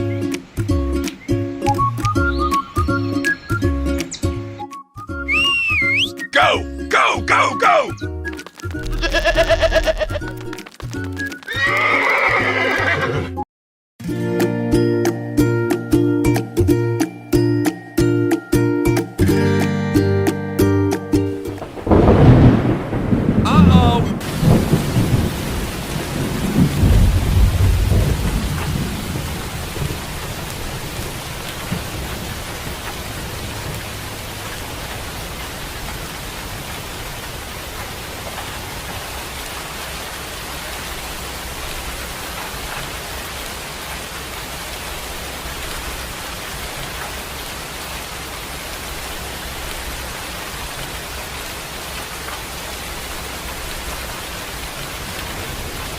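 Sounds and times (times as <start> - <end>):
heavy rain falling: 5.3 - 13.1, 21.3 - 55.9
thunder rumbling: 21.4 - 39.1, 54.5 - 55.9.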